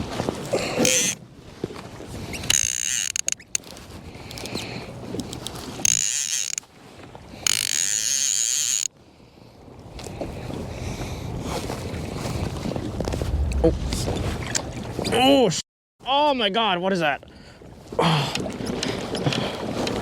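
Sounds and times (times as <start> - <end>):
fishing reel clicker buzzing: 2.5 - 3.6, 5.2 - 6.6, 7.5 - 8.9.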